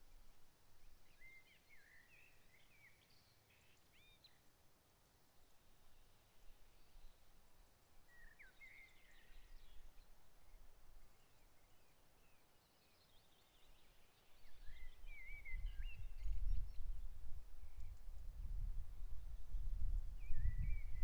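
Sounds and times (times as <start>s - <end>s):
songbirds singing: 0.8s - 4.6s, 5.3s - 21.0s.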